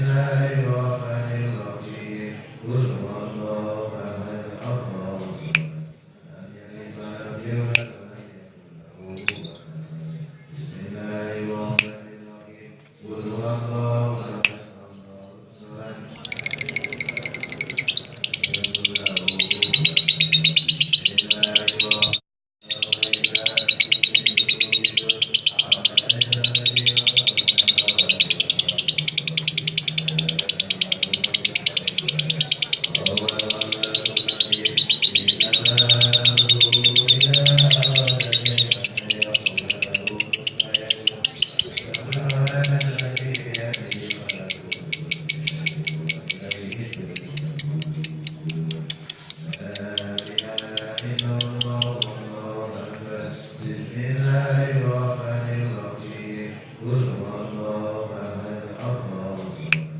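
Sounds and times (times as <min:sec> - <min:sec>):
lovebird chattering: 0:16.2 - 0:52.2.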